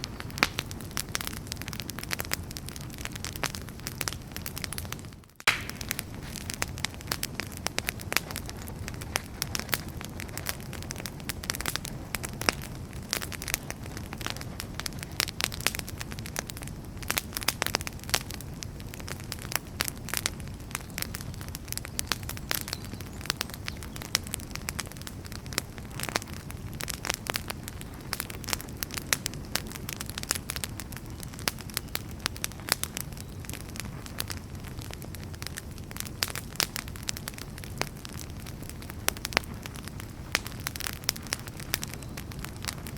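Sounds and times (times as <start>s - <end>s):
low noise of flames: 0.0s - 42.9s
wood fire crackling: 0.0s - 42.9s.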